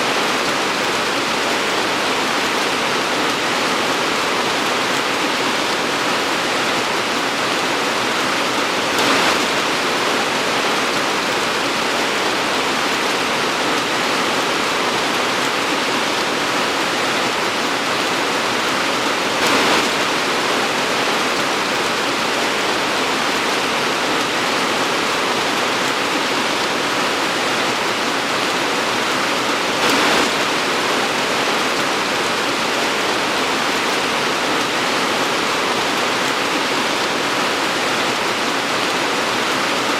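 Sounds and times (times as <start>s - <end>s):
torrential rain pouring: 0.0s - 39.9s.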